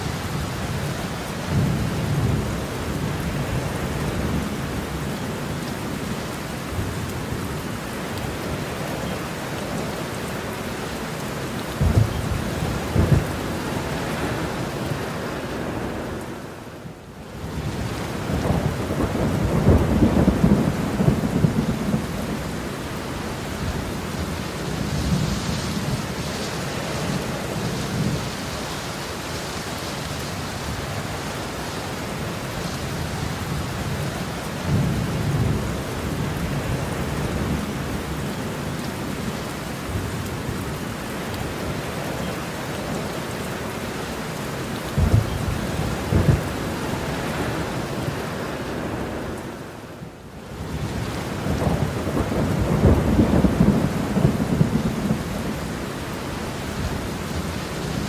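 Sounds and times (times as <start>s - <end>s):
heavy rain falling: 0.0s - 58.0s
sharp thunder claps: 11.8s - 13.4s, 45.0s - 46.5s
rolling thunder: 11.8s - 14.5s, 17.6s - 22.7s, 44.9s - 47.7s, 50.8s - 55.8s.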